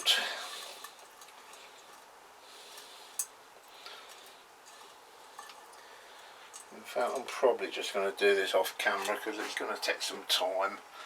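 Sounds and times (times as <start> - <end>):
metal engine parts handled: 0.0 - 7.3.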